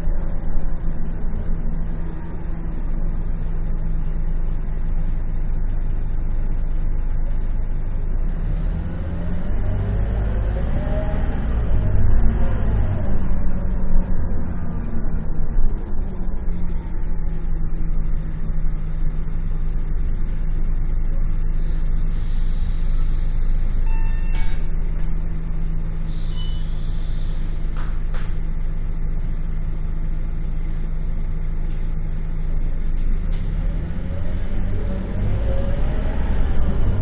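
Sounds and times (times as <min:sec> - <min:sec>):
bus diesel engine idling: 0:00.0 - 0:08.7, 0:11.4 - 0:33.4
short beep: 0:23.8 - 0:24.6
air hiss: 0:26.1 - 0:27.7.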